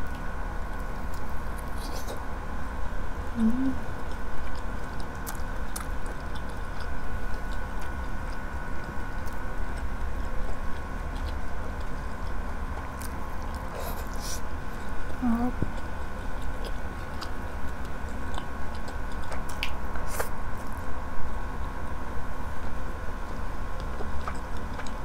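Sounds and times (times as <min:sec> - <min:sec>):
close chewing with mouth smacks: 0:00.0 - 0:02.3, 0:03.4 - 0:22.0, 0:22.6 - 0:25.0
person humming: 0:03.3 - 0:03.9, 0:15.2 - 0:15.6.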